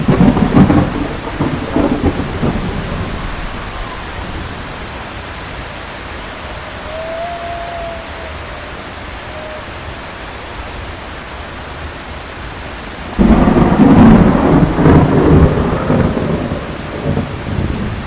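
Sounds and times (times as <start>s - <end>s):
thunderclap rumbling: 0.0s - 5.6s, 13.0s - 18.0s
heavy rain: 0.0s - 18.0s.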